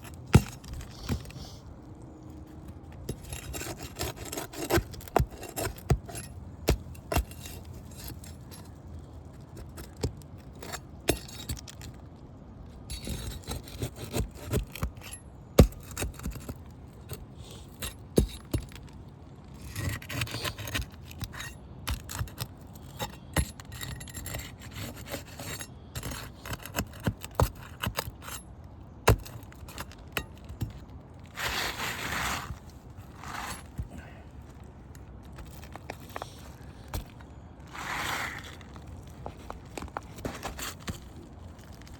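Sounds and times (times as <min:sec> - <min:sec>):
roofing bar scraping shingles: 0:31.2 - 0:34.1, 0:35.3 - 0:41.9.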